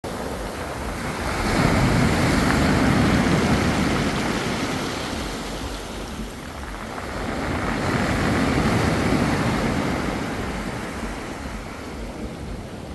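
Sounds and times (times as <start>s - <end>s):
sea waves washing onto beach: 0.1s - 12.9s.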